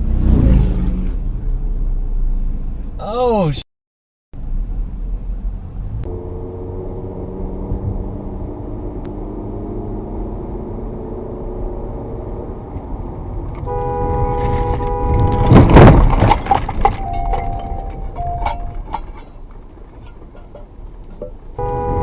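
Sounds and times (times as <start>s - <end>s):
car road and engine rumble: 0.0s - 3.6s, 4.4s - 22.0s
car horn: 13.6s - 19.4s, 21.6s - 22.0s
loud crash: 14.3s - 20.7s
debris clinking: 14.4s - 21.6s.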